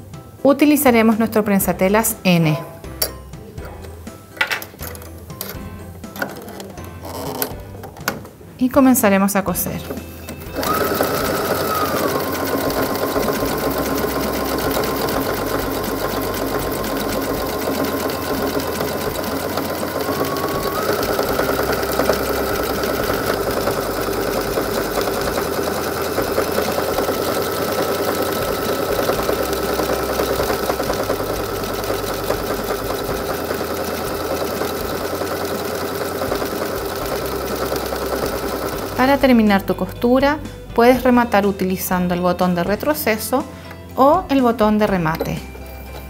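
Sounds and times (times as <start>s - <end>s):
sewing machine running: 9.9s - 39.4s.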